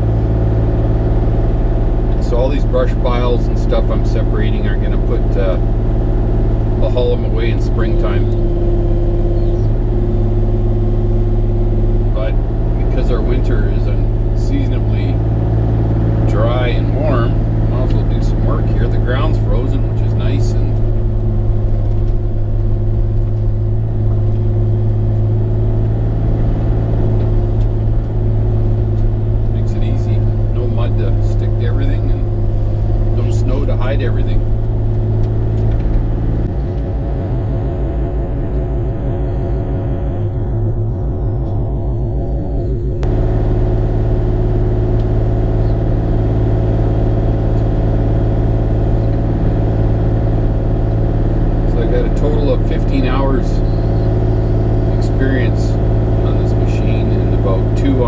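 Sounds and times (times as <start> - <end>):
excavator diesel engine humming: 0.0 - 58.0.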